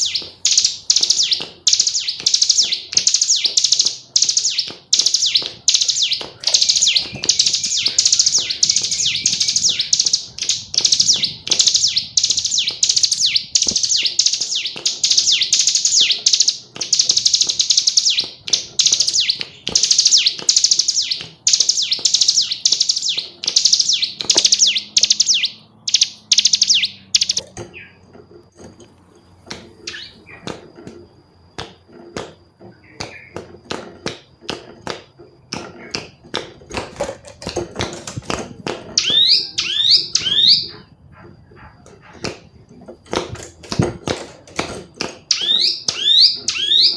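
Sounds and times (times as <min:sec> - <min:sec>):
bird chattering call: 0:00.0 - 0:28.0.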